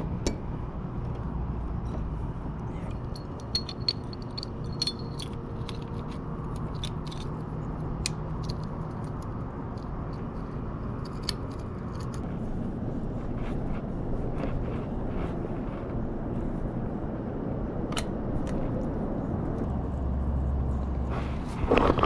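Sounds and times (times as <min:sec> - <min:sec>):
low background rumble: 0:00.0 - 0:22.0
metallic clicks of tools and parts: 0:02.9 - 0:07.4, 0:08.0 - 0:12.3.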